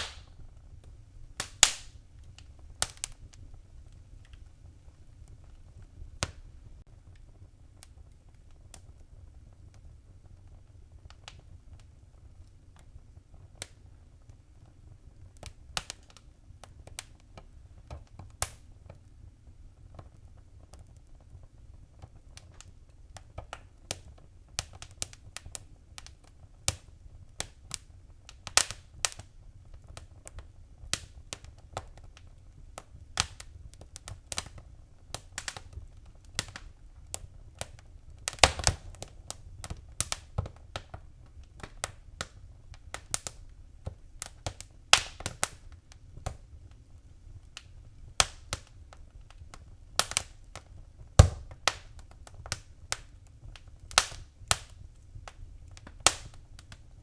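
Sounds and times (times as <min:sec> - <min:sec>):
low rumble of flames: 0:00.0 - 0:57.0
wood fire crackling: 0:00.0 - 0:57.0.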